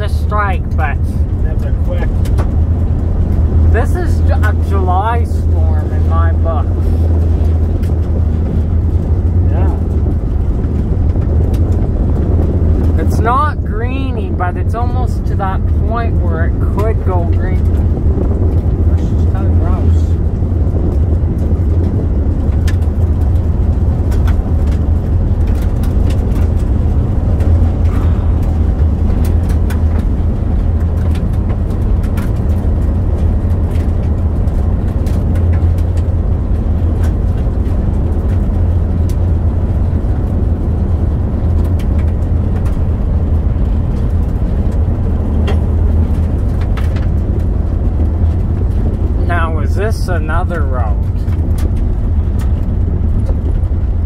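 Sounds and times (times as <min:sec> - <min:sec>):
road and engine rumble: 0:00.0 - 0:54.0
small ticks and clicks: 0:20.2 - 0:49.2.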